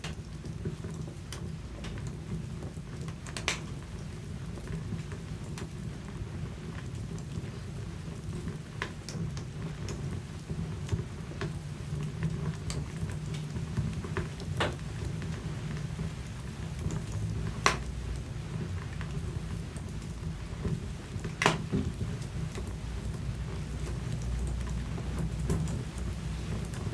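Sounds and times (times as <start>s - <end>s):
fire flames rumbling: 0.0s - 26.9s
logs crackling and popping: 0.0s - 26.9s.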